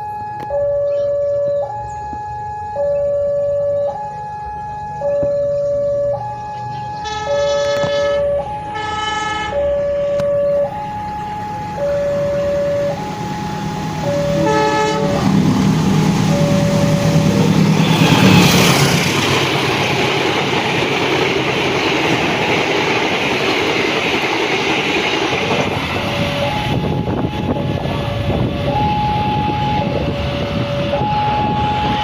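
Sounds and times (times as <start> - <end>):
two-tone alarm ringing: 0.0 - 15.3, 16.0 - 19.3, 24.6 - 27.8, 28.6 - 32.0
train horn: 7.0 - 10.2, 14.0 - 15.7, 16.5 - 19.2
train wheels clattering on rails: 15.2 - 27.0.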